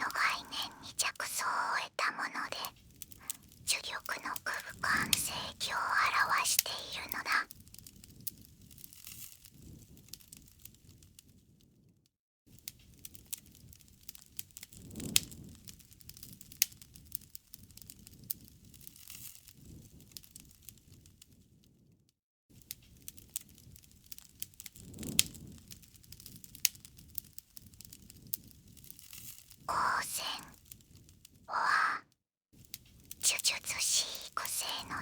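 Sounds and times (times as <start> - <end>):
campfire crackling: 0.0 - 9.3, 22.9 - 30.8.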